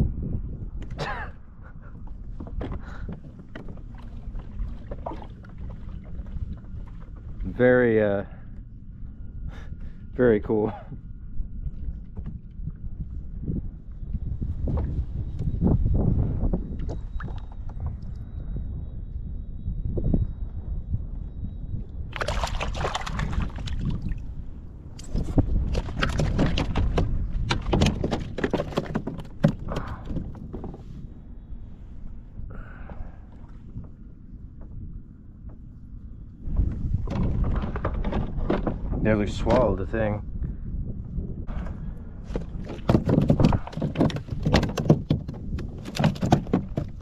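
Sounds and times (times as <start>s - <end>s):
knocks and rattles on plastic kayak: 2.0s - 7.6s, 25.0s - 31.0s, 36.4s - 40.2s, 41.5s - 47.0s
knocks and clicks on plastic kayak: 25.7s - 30.8s, 42.3s - 47.0s.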